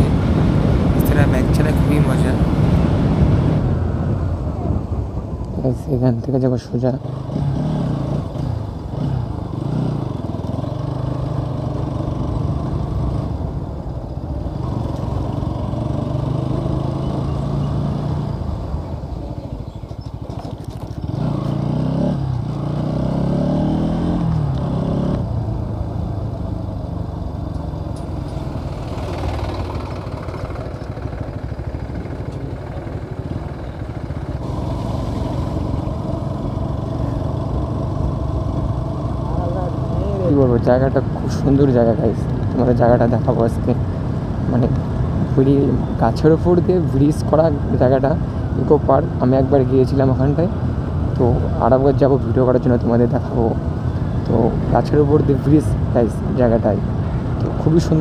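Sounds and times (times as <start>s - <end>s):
motorcycle engine accelerating: 7.0s - 13.7s, 14.3s - 48.0s.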